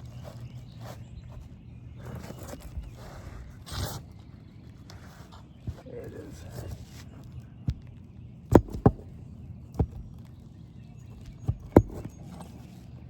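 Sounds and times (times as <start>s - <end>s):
hammer knocking on roof: 8.5s - 9.2s, 11.5s - 12.2s.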